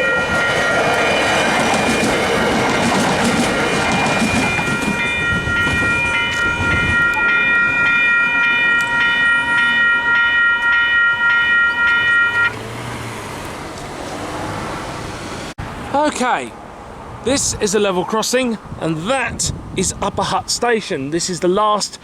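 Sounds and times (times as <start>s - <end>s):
crossing bell dinging: 0.0s - 13.3s
train rumble: 0.0s - 15.9s.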